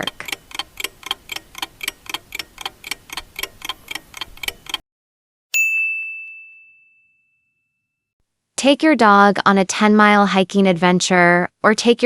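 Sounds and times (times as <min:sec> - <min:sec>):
clock ticking: 0:00.0 - 0:04.8
bell ding: 0:05.6 - 0:08.0.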